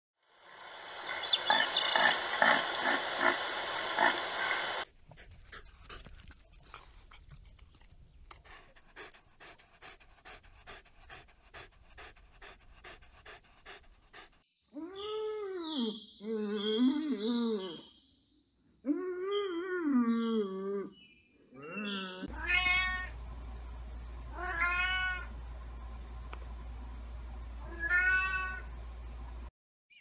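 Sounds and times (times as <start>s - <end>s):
loud pulsing noise: 0.5s - 4.8s
dog panting: 4.8s - 14.5s.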